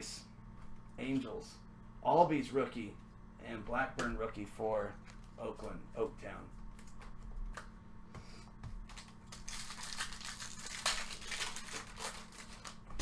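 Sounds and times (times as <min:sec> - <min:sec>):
foil wrapper crinkling: 0:08.8 - 0:13.0.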